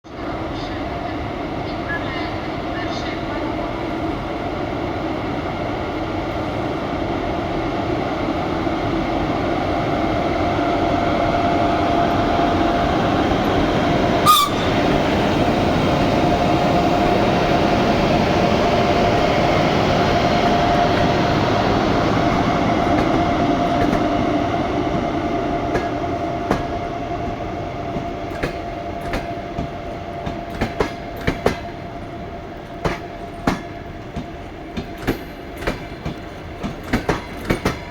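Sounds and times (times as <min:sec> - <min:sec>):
train rumbling past: 0:00.0 - 0:37.9
wheels clicking over rail joints: 0:19.0 - 0:37.9.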